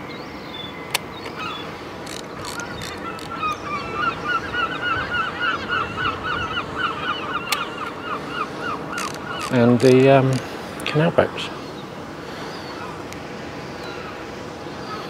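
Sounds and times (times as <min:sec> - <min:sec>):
bird calling repeated notes: 0:00.6 - 0:10.4.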